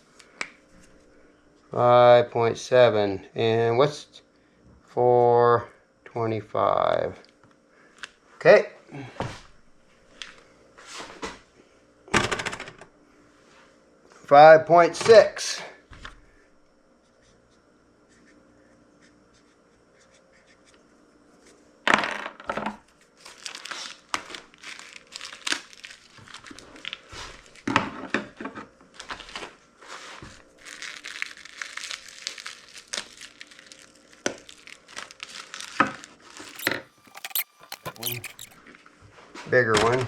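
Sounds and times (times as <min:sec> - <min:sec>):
plastic bags crinkling: 0:23.2 - 0:27.7, 0:30.6 - 0:38.6.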